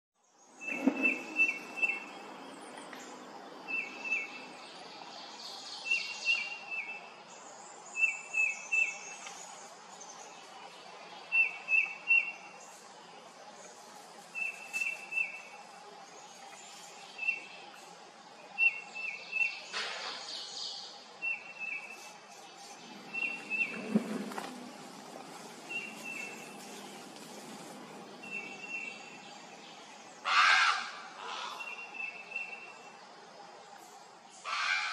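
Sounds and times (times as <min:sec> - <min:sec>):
bird chirping: 0:00.2 - 0:07.1, 0:18.5 - 0:30.4, 0:31.2 - 0:33.0
outdoor background hiss: 0:00.2 - 0:34.9.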